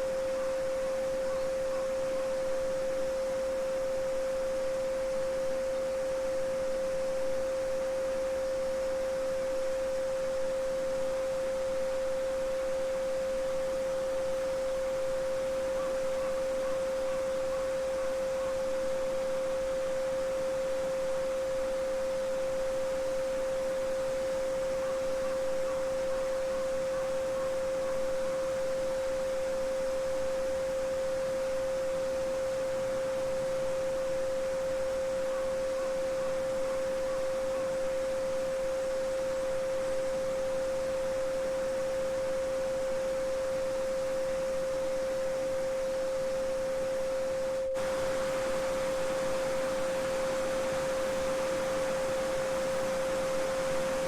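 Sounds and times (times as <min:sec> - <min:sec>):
steady sine tone: 0:00.0 - 0:54.0.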